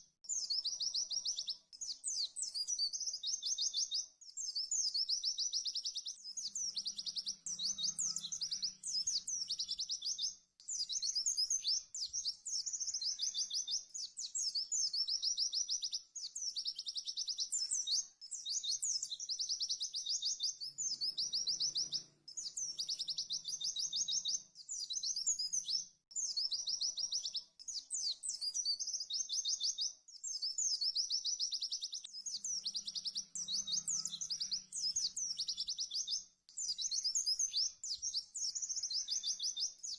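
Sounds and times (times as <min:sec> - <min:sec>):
bird singing trilled phrases: 0:00.0 - 0:39.9.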